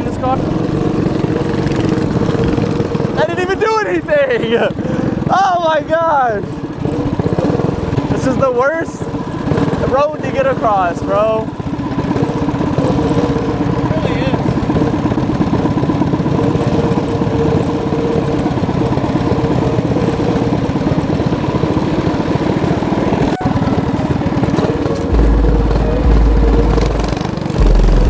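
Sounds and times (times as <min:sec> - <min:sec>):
mini bike engine running: 0:00.0 - 0:28.0
music with heavy bass beat: 0:22.6 - 0:28.0.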